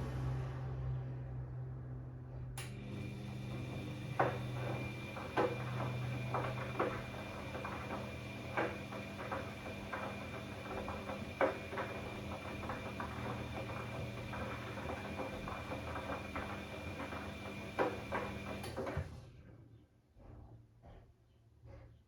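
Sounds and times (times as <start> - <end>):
washing machine motor humming: 2.6 - 19.1
wash load knocking and sloshing: 3.0 - 19.1.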